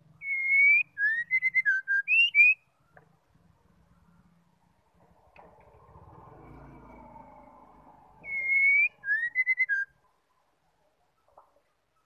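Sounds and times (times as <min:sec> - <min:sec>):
bird whistling song: 0:00.2 - 0:03.0, 0:08.2 - 0:10.1.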